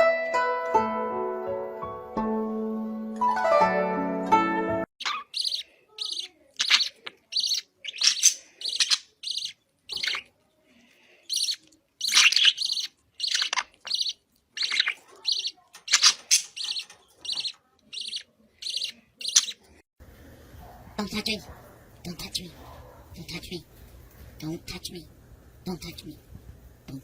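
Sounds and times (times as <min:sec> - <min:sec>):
bird chirping: 0:05.0 - 0:10.3, 0:11.2 - 0:19.8.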